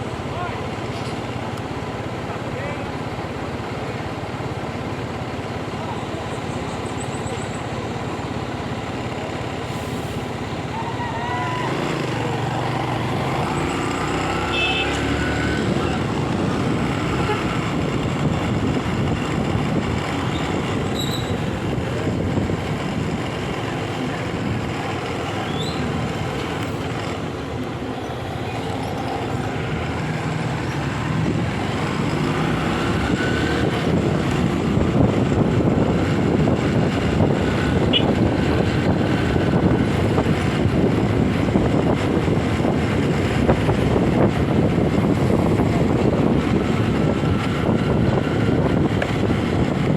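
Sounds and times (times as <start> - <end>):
motorcycle engine and road noise: 0.0 - 49.9
wind rumbling on microphone: 15.4 - 27.3, 28.9 - 49.9.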